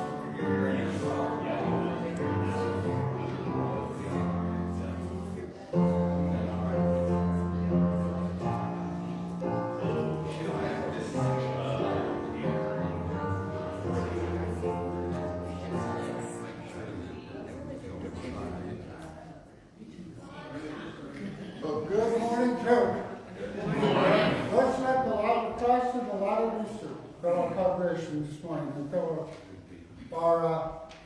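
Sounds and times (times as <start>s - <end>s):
slow keyboard music with chords: 0.0s - 16.6s.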